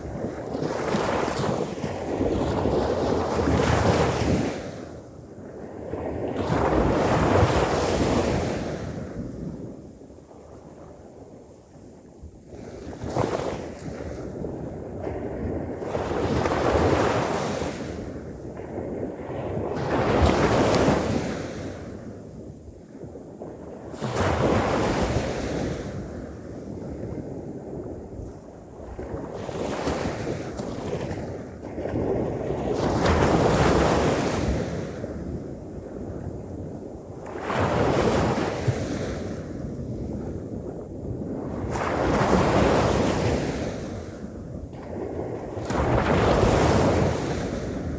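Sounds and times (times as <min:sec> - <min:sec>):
ocean waves breaking: 0:41.4 - 0:47.9.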